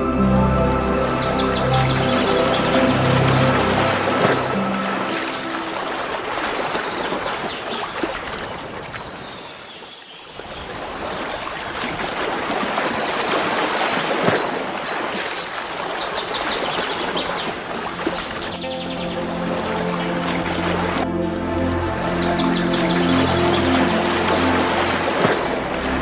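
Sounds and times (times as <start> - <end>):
water rushing: 0.0 - 26.0
bird chirping: 18.2 - 20.5.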